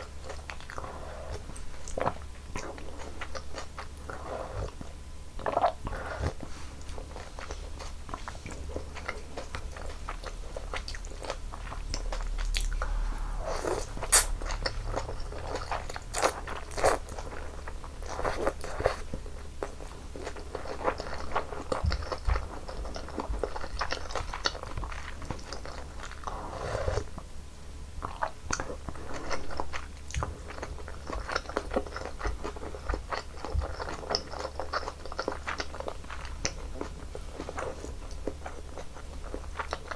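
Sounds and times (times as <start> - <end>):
person chewing noodles: 0.0 - 27.2, 28.0 - 39.9
wet mouth clicks: 13.7 - 14.8.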